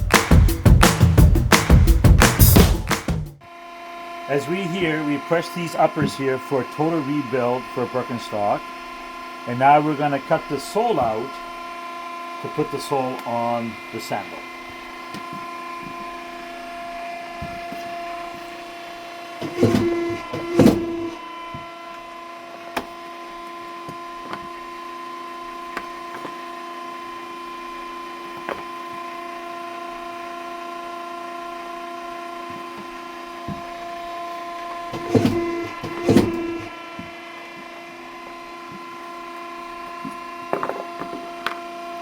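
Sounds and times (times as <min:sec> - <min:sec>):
machine motor humming: 0:03.8 - 0:22.0, 0:33.2 - 0:38.8.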